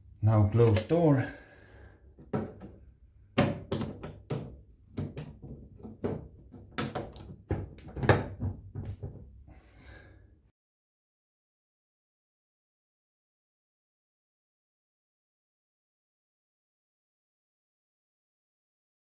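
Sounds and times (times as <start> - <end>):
plastic cover knocks and clicks: 2.2 - 2.8, 3.4 - 9.4.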